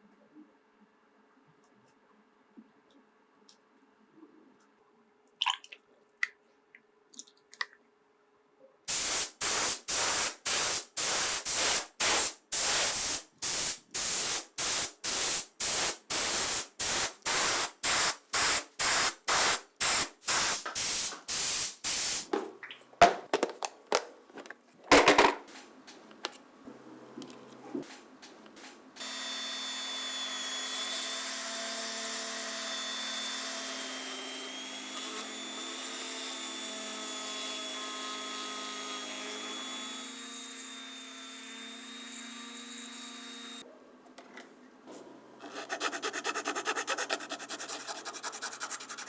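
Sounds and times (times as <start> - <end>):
spray paint hissing: 8.9 - 22.3.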